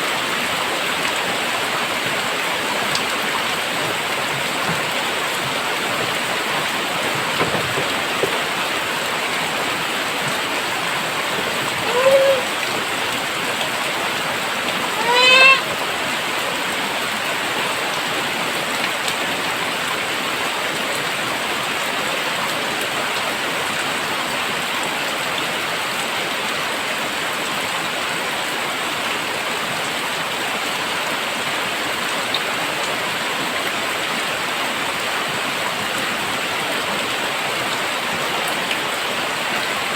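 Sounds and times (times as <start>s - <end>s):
heavy rain falling: 0.0s - 39.9s
short pitched calls: 11.8s - 12.8s, 14.8s - 15.7s.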